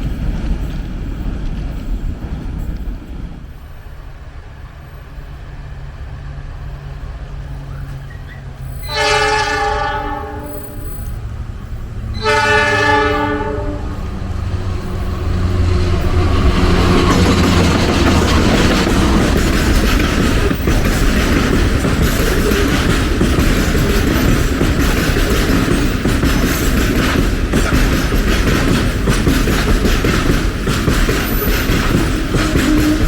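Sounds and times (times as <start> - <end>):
locomotive engine hum: 0.0 - 33.0
train wheels on rails: 0.0 - 33.0
train horn blasts: 8.8 - 11.2, 12.1 - 15.3, 32.3 - 33.0.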